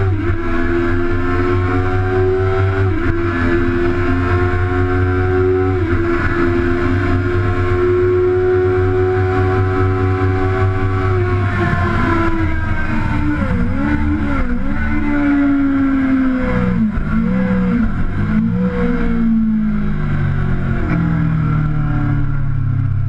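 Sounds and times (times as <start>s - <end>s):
motorcycle engine at full throttle: 0.0s - 23.0s.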